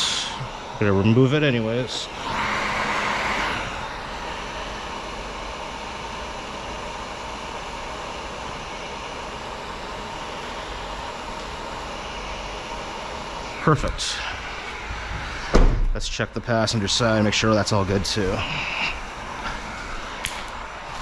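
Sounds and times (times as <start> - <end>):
steady whooshing air noise: 13.4 - 21.0.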